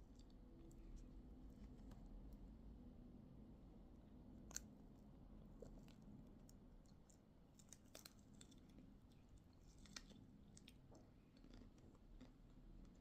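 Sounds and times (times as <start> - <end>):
person chewing food: 5.5 - 13.0.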